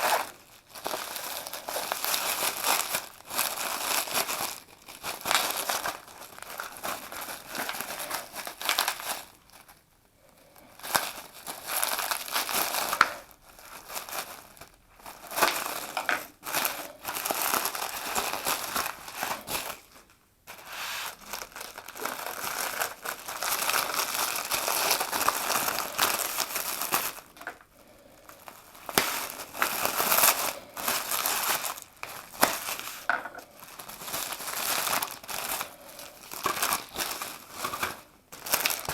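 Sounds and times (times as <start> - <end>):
packaging crinkling and rustling: 0.0 - 38.9.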